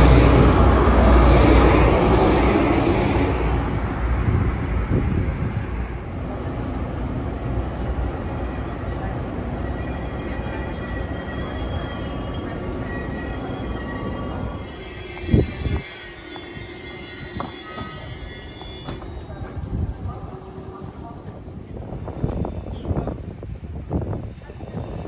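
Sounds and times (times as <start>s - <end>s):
train rushing past: 0.0s - 25.0s
wheel and brake squeals: 6.0s - 20.0s.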